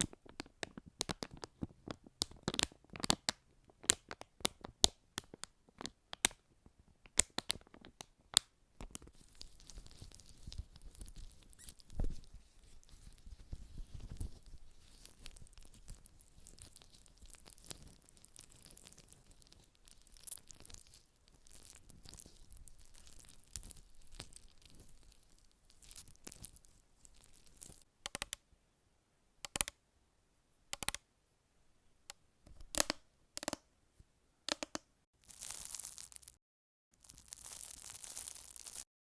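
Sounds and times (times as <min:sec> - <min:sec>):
crinkly scratching: 0:09.0 - 0:27.9, 0:35.2 - 0:36.4, 0:37.0 - 0:38.9.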